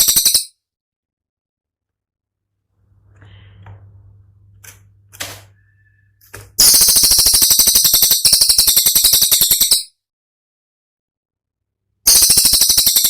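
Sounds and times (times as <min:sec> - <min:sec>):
songbird rattling trill: 0:00.0 - 0:00.5, 0:06.6 - 0:09.9, 0:12.1 - 0:13.0.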